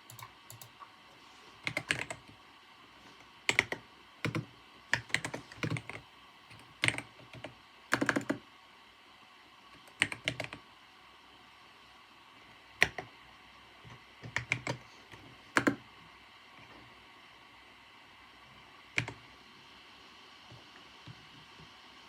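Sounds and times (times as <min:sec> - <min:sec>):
typing on a computer keyboard: 0:00.0 - 0:00.8, 0:01.6 - 0:02.3, 0:03.5 - 0:08.4, 0:09.8 - 0:10.6, 0:12.8 - 0:13.1, 0:14.2 - 0:15.8, 0:19.0 - 0:19.2.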